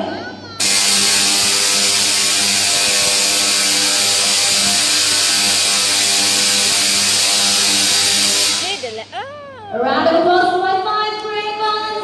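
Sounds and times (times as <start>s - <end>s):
tesla coil buzzing and crackling: 0.6s - 9.2s.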